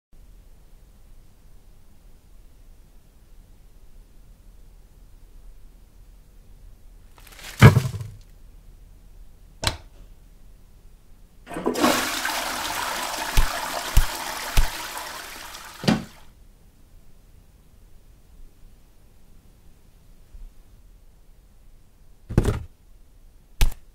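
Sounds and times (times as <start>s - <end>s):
sharp thud: 7.4s - 8.2s
toilet flushing: 11.5s - 16.3s.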